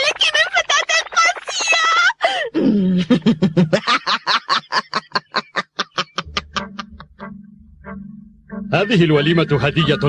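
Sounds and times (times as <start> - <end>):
cartoon character mocking laugh: 4.8 - 7.3
low steady music tone: 6.2 - 10.0.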